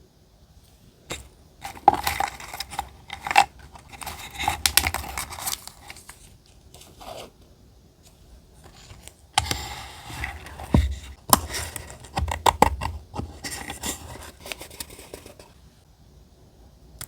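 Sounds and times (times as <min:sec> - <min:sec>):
paper rustling: 0:01.1 - 0:07.3, 0:08.6 - 0:15.6.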